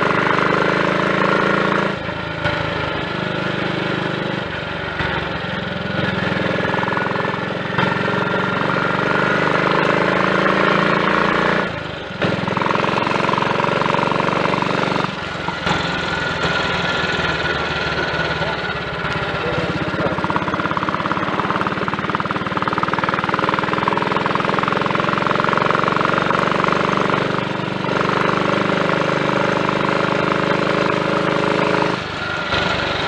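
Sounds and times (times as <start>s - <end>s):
single-cylinder motorcycle engine running: 0.0s - 33.0s.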